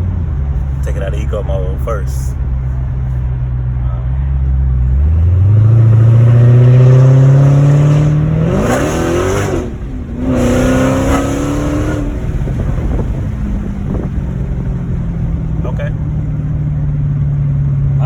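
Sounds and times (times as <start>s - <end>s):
car engine accelerating hard: 0.0s - 18.0s.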